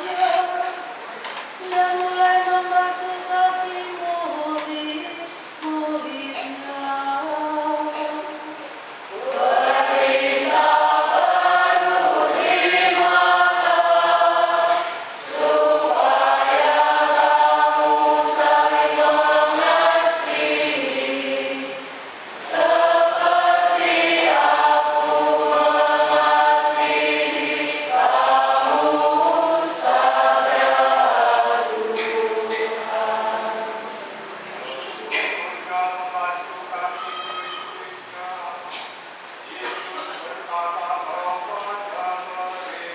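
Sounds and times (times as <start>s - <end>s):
church choir singing a hymn: 9.1s - 34.7s.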